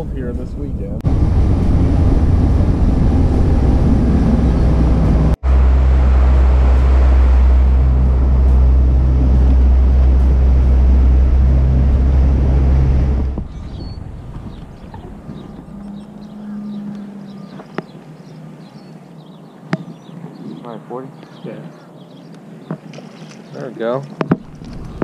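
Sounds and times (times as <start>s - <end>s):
wind rushing: 1.0s - 18.6s
water rushing: 1.0s - 20.0s
outboard motor hum: 1.0s - 20.8s.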